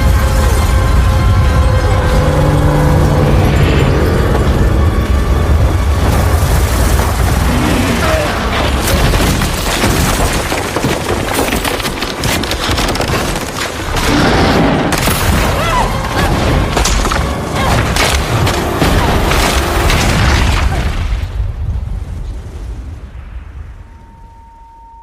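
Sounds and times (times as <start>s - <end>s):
deep constant rumble: 0.0s - 23.1s
crashes of collapsing structures: 5.3s - 21.7s.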